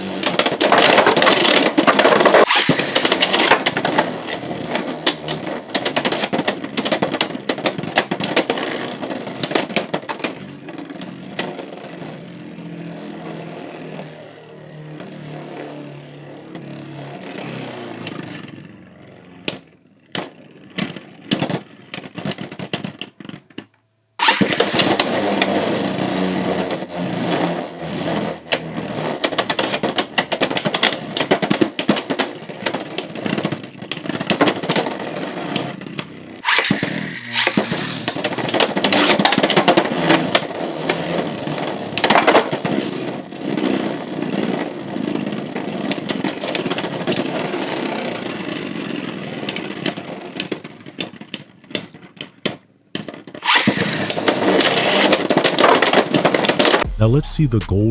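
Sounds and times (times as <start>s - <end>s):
spinning tops clashing rattling whir: 2.1s - 3.7s, 36.4s - 38.3s.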